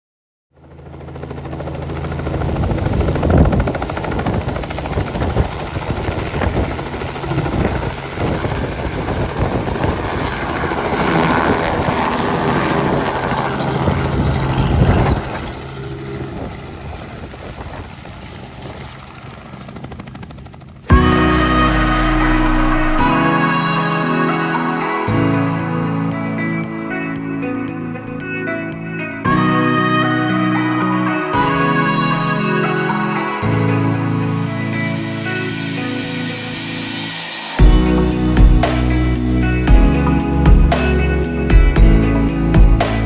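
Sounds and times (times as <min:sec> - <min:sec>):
helicopter rotor and engine: 0:00.6 - 0:25.0, 0:35.2 - 0:42.8.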